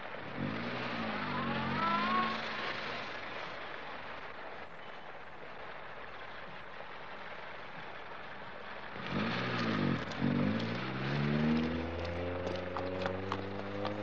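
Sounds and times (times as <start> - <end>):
car engine revving: 0.0 - 3.3, 8.9 - 14.0
rain hissing: 0.0 - 14.0.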